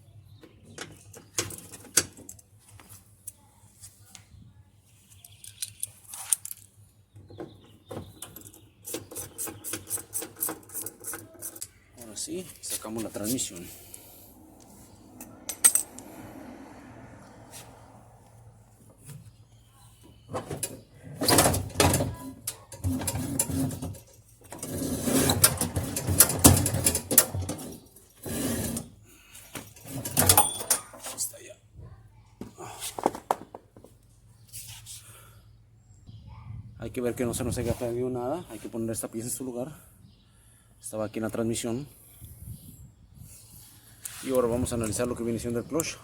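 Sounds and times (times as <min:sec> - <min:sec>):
tools clicking and knocking on metal: 0:05.2 - 0:11.8, 0:15.2 - 0:16.1, 0:20.3 - 0:27.8, 0:29.6 - 0:31.2.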